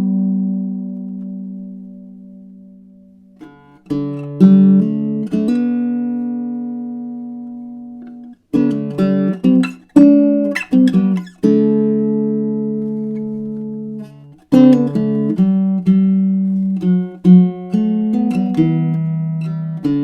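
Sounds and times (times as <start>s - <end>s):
acoustic string instrument playing: 0.0s - 20.0s.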